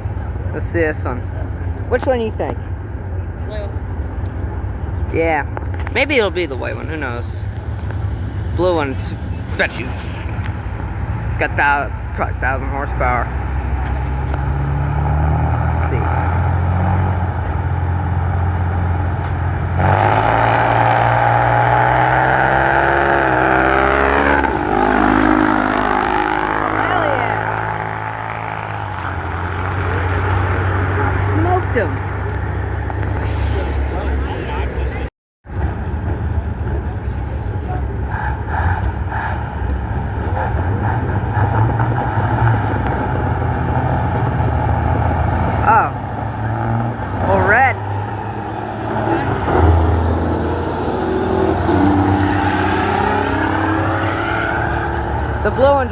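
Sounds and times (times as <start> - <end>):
diesel truck engines accelerating: 0.0 - 55.9
heavy truck engine running: 29.2 - 53.4.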